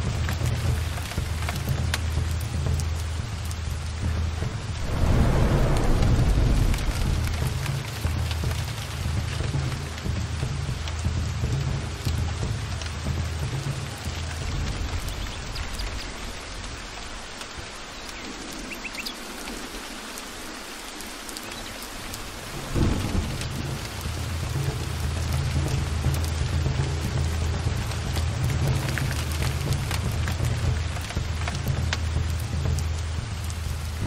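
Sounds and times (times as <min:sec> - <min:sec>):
heavy rain: 0:00.0 - 0:34.0
thunder rumbling: 0:04.2 - 0:10.2, 0:22.1 - 0:31.5
thunder clap: 0:04.6 - 0:09.4, 0:22.5 - 0:25.0.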